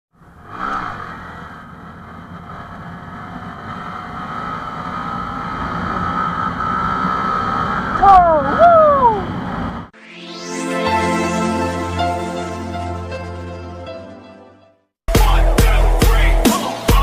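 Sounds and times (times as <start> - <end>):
small motorcycle engine high revs: 0.2 - 9.9.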